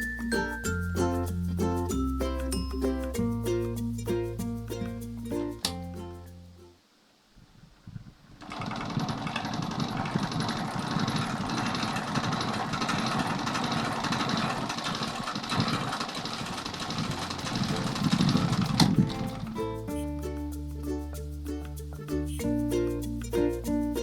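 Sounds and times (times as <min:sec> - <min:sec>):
electric fan rattling: 0:08.0 - 0:19.9.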